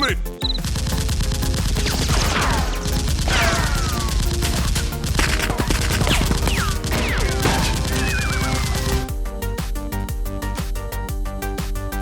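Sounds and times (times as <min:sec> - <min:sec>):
background music: 0:00.0 - 0:12.0
rapid gunfire sound effects: 0:00.4 - 0:09.1.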